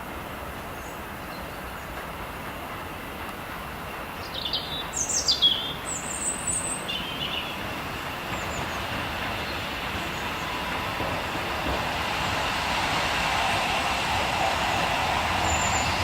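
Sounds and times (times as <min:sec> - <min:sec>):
songbird chirping and trilling: 0:04.2 - 0:07.7.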